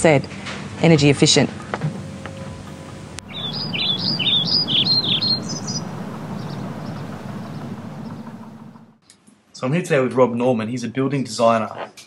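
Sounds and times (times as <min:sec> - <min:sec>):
steady outdoor hiss: 0:00.6 - 0:09.0
bird chirping: 0:02.0 - 0:09.0.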